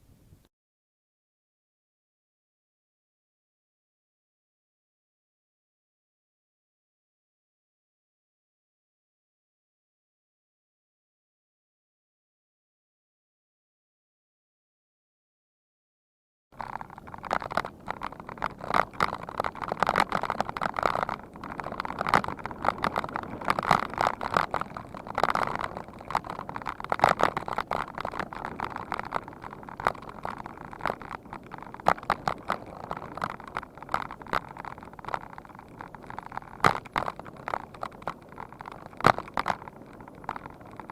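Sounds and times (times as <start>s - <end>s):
bicycle rattling and clattering: 16.6s - 40.9s.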